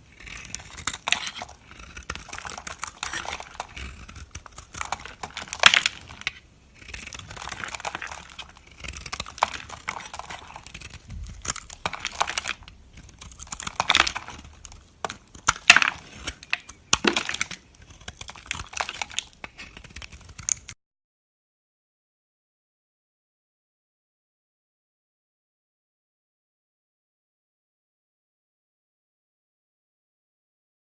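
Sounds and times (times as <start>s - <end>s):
knife cutting through soap: 0.0s - 20.8s.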